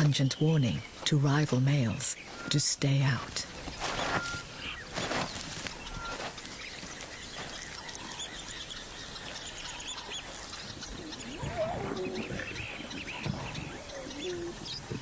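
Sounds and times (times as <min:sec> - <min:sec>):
birds chirping: 0:00.0 - 0:15.0
low drawn-out bird call: 0:07.8 - 0:15.0.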